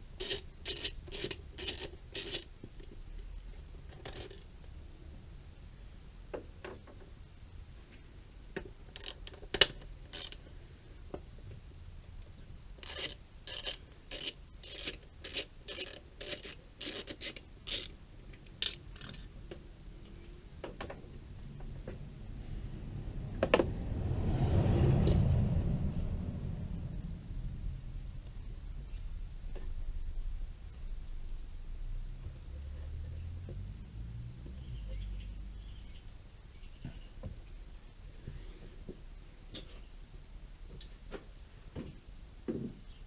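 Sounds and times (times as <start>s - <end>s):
hand tool rasping strokes: 0.2s - 2.5s, 12.8s - 17.9s.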